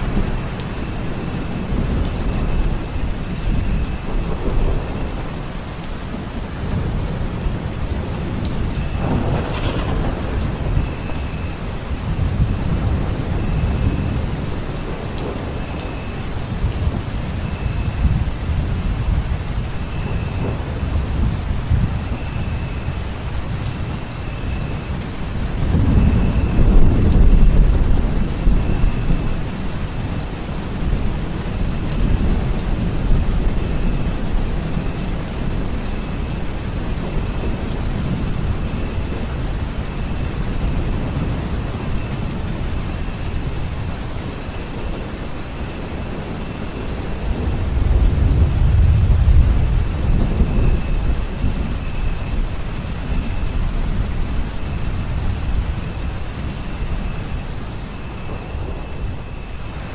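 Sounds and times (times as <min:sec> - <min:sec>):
low thunder rumble: 0:00.0 - 0:59.9
rain falling: 0:00.0 - 0:59.9.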